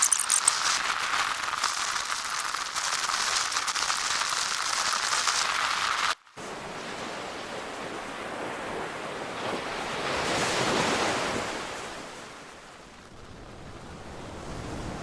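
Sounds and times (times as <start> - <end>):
rush of wind and water: 5.9 - 15.0.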